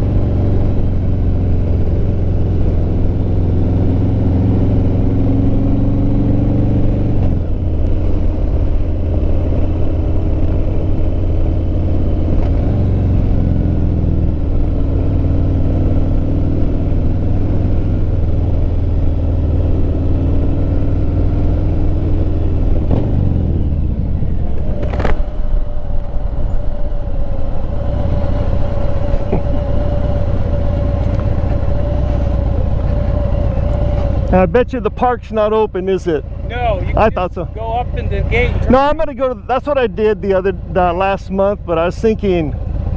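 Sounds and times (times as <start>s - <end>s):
wind rumble: 0.0s - 41.9s
motorcycle engine running: 0.0s - 42.9s.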